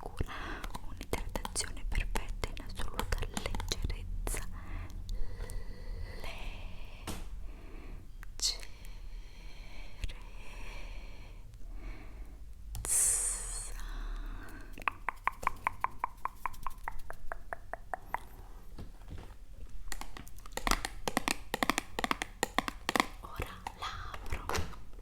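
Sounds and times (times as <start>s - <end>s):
tapping on hard object: 14.8s - 18.3s, 20.0s - 23.2s.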